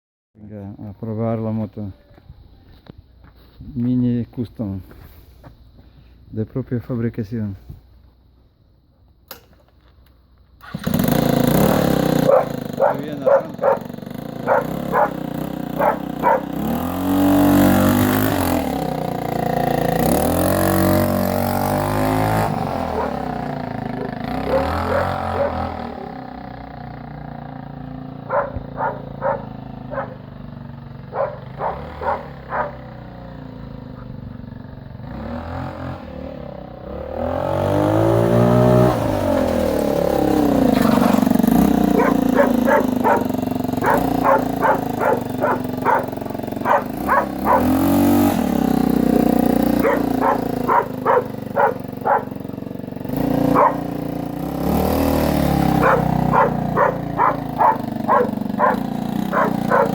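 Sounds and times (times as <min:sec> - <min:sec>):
motorcycle engine idling and revving: 0:00.4 - 0:59.9
dog barking: 0:12.3 - 0:15.2, 0:15.8 - 0:16.6, 0:22.8 - 0:26.2, 0:28.3 - 0:30.3, 0:31.1 - 0:32.8, 0:41.9 - 0:47.8, 0:49.8 - 0:52.4, 0:53.5 - 0:54.0, 0:55.8 - 0:59.9.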